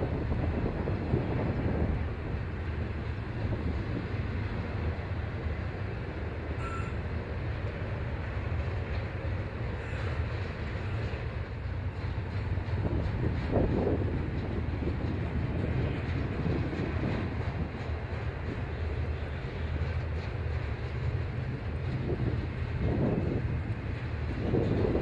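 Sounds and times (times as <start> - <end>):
train wheels rumbling on rails: 0.0 - 25.0
faint high tone: 6.6 - 7.0.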